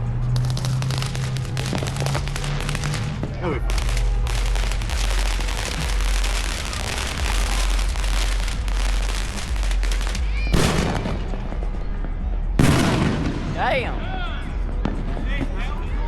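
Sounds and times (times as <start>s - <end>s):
fireworks crackling barrage: 0.0s - 15.6s
loud firework bangs: 0.2s - 14.0s
firework whistle: 0.4s - 11.3s.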